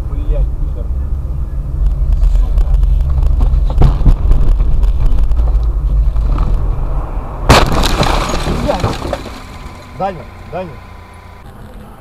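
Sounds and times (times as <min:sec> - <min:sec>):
car engine and road noise: 0:00.0 - 0:12.0
sharp loud bang: 0:07.4 - 0:10.1.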